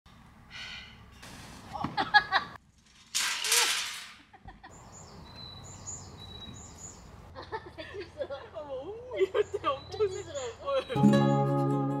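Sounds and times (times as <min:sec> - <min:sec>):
songbirds chirping: 0:04.6 - 0:11.4.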